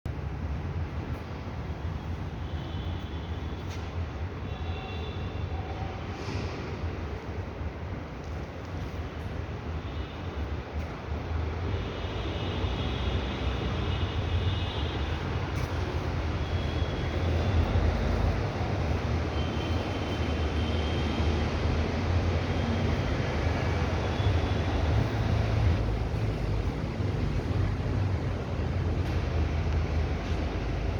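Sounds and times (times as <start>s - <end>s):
moving vehicle rumble: 10.6s - 30.9s.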